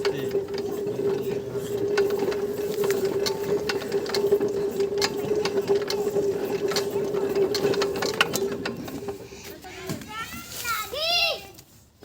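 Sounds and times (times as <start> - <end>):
mechanical clicks and clatter: 0.0 - 9.3
diesel engine humming: 0.0 - 9.8.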